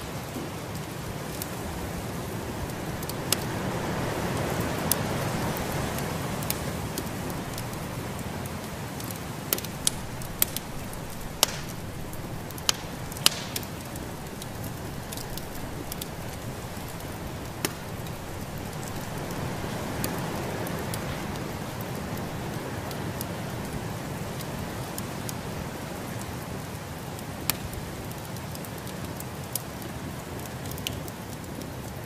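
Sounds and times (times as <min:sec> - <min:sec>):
snowstorm rushing noise: 0:00.0 - 0:26.0
wood fire crackling: 0:00.0 - 0:32.0
sharp pops from fire: 0:02.2 - 0:25.4, 0:27.4 - 0:29.7.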